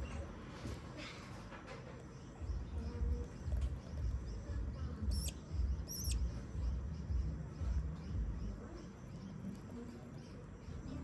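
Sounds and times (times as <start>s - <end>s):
budgerigar chirping: 5.1s - 6.2s.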